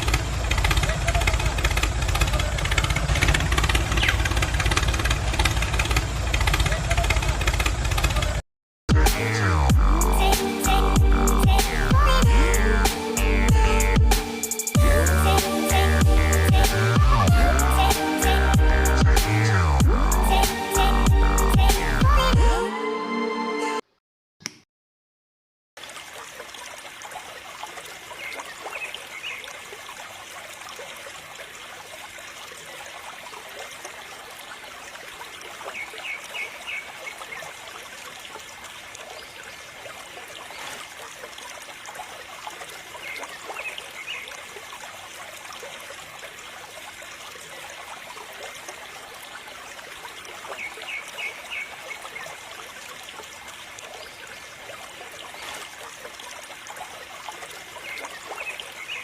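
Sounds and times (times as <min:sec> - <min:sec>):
water trickling: 0:00.0 - 0:08.4, 0:25.8 - 0:59.0.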